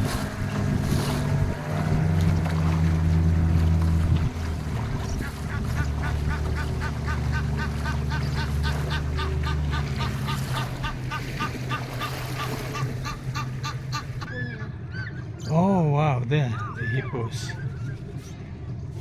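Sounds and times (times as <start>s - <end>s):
boat motor humming: 0.0s - 19.0s
bird honking calls: 5.0s - 15.5s.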